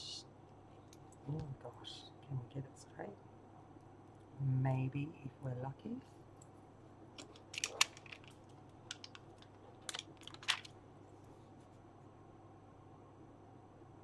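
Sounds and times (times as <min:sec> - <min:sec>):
paper crinkling: 0:07.2 - 0:10.8.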